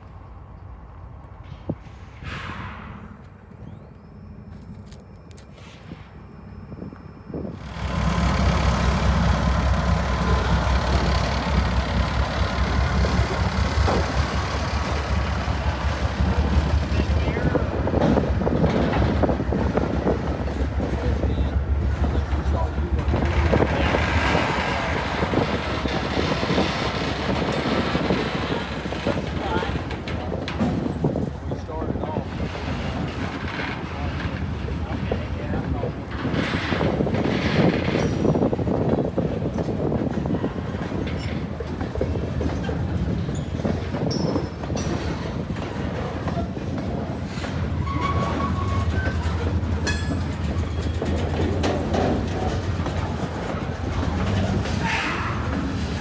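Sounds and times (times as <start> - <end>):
freight train wheels on rail: 0.0 - 56.0.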